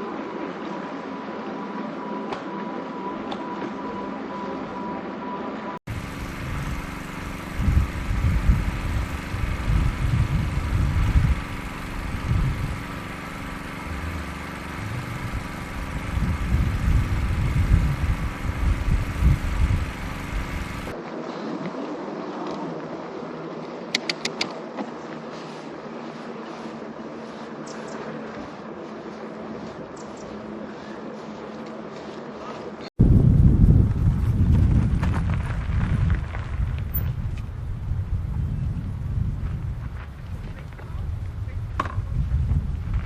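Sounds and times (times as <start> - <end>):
hum of motor and tyres: 0.0 - 43.0
wind buffeting microphone: 5.9 - 21.0, 33.0 - 43.0
quick clicks: 23.9 - 24.6.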